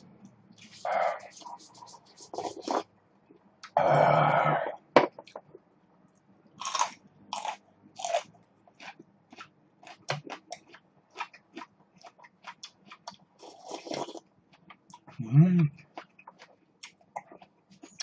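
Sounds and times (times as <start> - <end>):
chewing crunchy food: 6.6 - 15.1.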